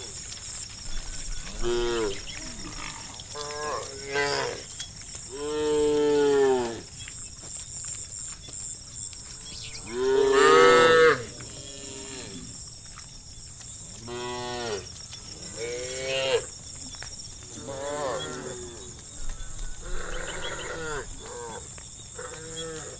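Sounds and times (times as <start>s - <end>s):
cows mooing: 1.4s - 6.9s, 9.8s - 12.5s, 17.6s - 19.0s, 19.8s - 22.9s.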